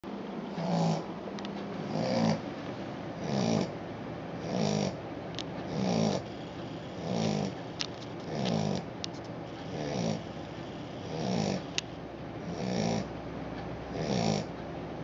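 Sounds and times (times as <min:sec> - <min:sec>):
puppy snoring: 0:00.5 - 0:01.2, 0:01.8 - 0:02.5, 0:03.1 - 0:03.8, 0:04.4 - 0:05.0, 0:05.6 - 0:08.9, 0:09.5 - 0:13.1, 0:13.9 - 0:14.5.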